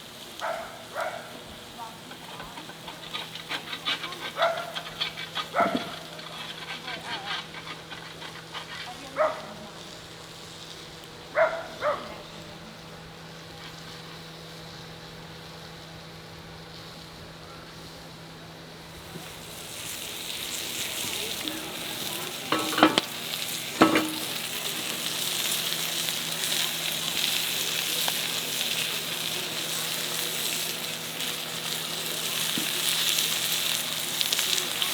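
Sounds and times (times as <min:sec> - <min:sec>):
food sizzling in a frying pan: 0:00.0 - 0:06.4, 0:08.4 - 0:34.9
utensil knocking against pan: 0:22.5 - 0:23.1, 0:23.8 - 0:24.4.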